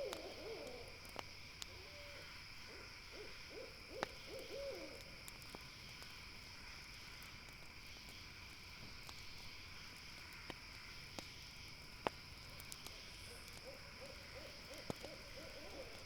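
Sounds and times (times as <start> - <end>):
owl hooting: 0.0 - 0.9, 1.7 - 5.0, 13.6 - 16.0
campfire crackling and popping: 0.0 - 1.8, 4.0 - 16.0
night insects humming: 0.0 - 16.0.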